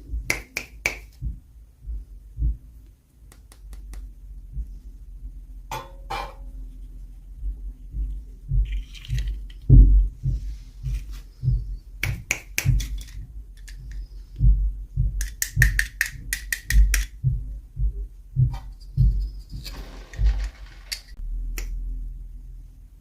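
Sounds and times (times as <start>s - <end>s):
plastic toys clicking and tapping: 8.7s - 9.7s, 12.3s - 14.0s, 15.2s - 17.2s.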